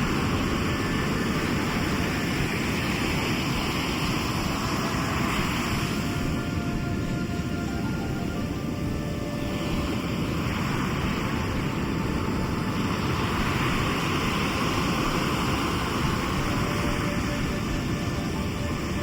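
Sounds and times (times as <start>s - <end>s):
waves rumbling: 0.0s - 19.0s.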